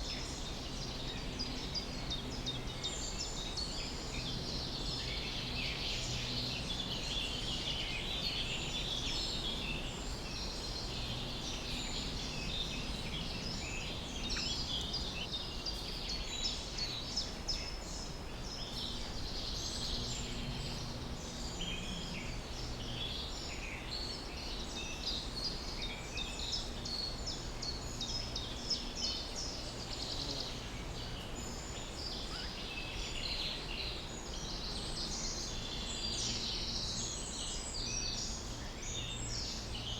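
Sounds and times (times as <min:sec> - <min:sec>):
small birds chirping and singing: 0:00.0 - 0:39.9.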